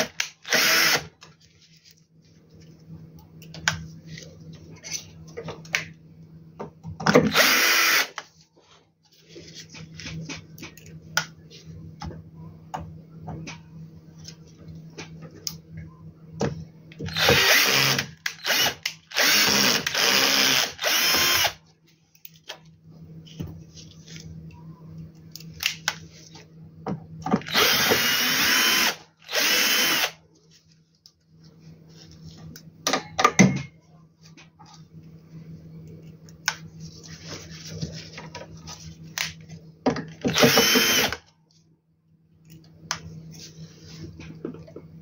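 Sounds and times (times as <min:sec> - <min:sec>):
power drill driving screws: 0:00.0 - 0:01.1, 0:07.3 - 0:08.2, 0:17.1 - 0:21.6, 0:27.4 - 0:30.2, 0:40.3 - 0:41.2.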